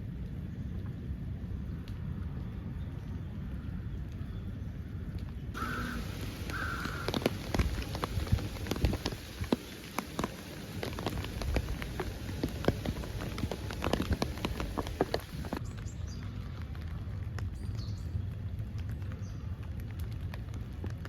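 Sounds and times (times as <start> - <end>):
raindrop taps: 5.6 - 15.6
rain hissing: 5.6 - 15.7.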